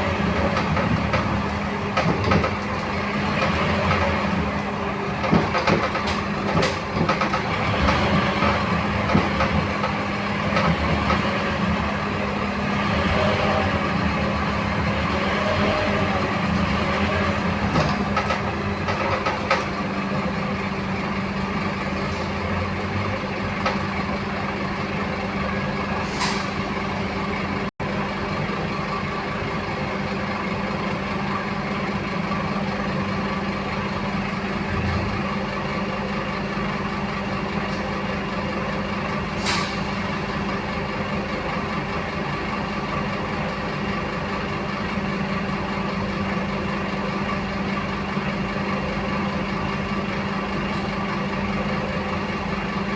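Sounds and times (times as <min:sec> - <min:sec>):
bus diesel engine running: 0:00.0 - 0:52.9
brief air hiss: 0:26.0 - 0:26.6.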